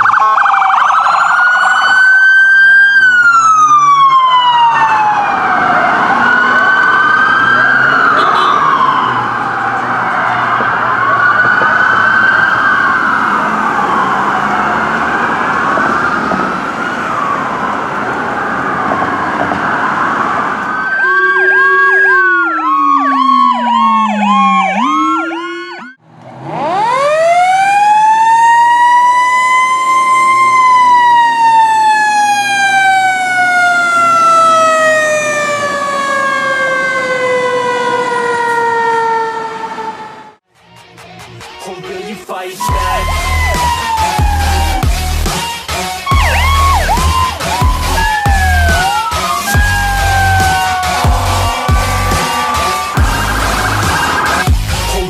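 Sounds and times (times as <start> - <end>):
emergency vehicle sirens: 0.0 - 40.5, 42.6 - 55.0.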